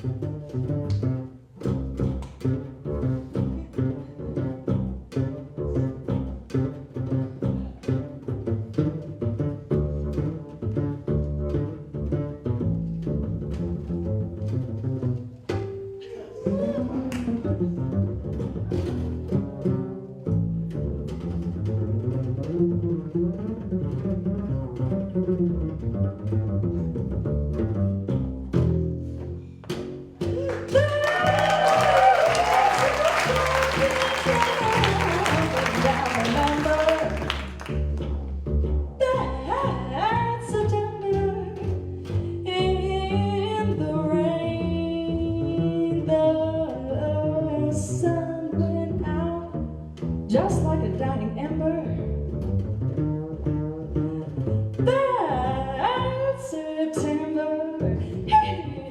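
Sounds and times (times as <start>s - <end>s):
plucked double bass solo: 0.0s - 58.9s
jazz singing: 13.3s - 49.6s.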